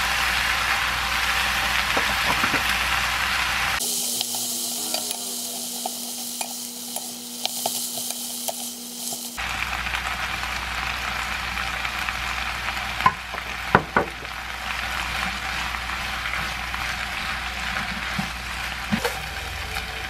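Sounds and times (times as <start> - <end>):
food sizzling in a frying pan: 0.0 - 20.0
spatula stirring food: 3.8 - 9.4, 14.6 - 19.1.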